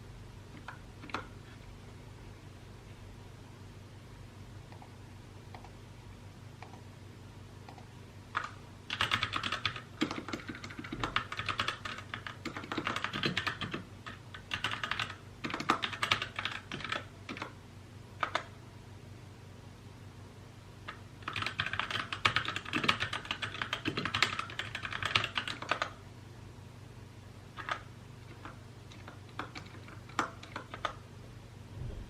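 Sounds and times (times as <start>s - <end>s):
typing on mechanical keyboard: 8.4s - 17.6s, 18.2s - 18.5s, 20.9s - 26.0s, 27.6s - 31.0s.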